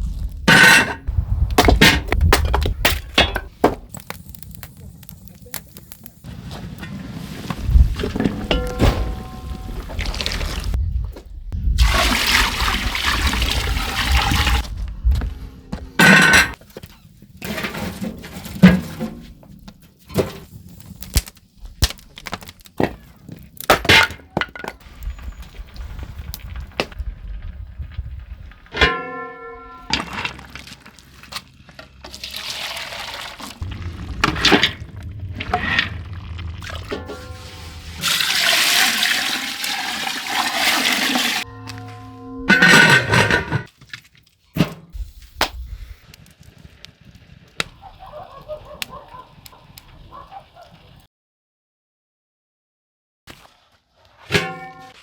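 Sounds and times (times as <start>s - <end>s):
water gushing: 9.1s - 10.8s, 11.8s - 14.6s, 32.0s - 41.4s.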